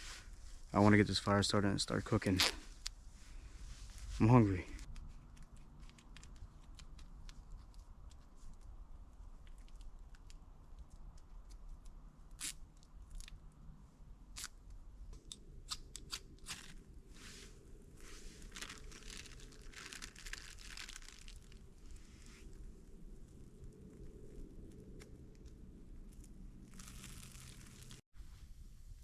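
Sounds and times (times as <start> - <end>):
tape tearing: 15.7 - 16.8, 18.5 - 21.6, 26.1 - 28.0.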